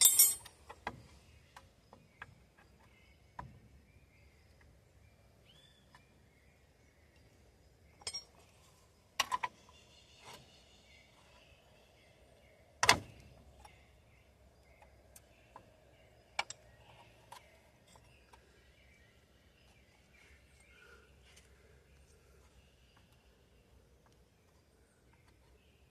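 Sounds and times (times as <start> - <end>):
metal tools clinking: 0.0 - 0.6, 8.0 - 8.4.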